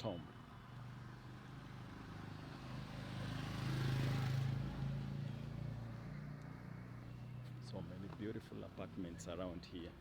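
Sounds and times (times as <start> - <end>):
low traffic hum: 0.0 - 10.0
car passing by: 1.0 - 7.7.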